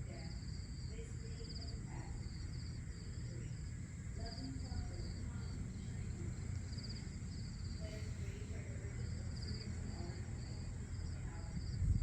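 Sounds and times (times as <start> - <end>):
crickets chirping: 0.0 - 12.0
high insect drone: 0.0 - 12.0.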